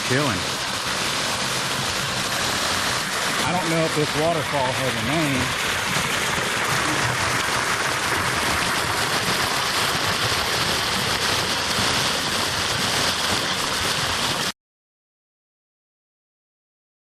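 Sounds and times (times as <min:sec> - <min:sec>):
waterfall splashing into pool: 0:00.0 - 0:14.6.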